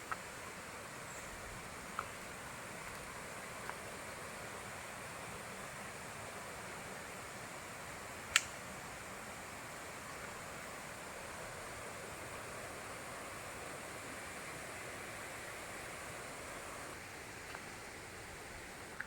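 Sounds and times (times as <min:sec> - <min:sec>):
sharp click: 0:08.3 - 0:08.6.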